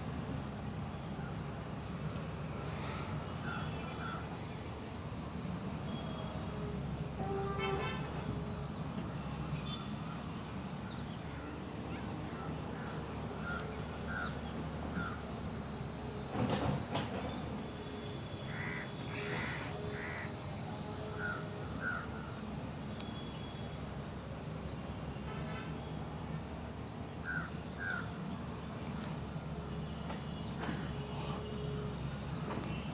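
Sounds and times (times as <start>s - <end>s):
crows cawing: 18.5s - 20.3s.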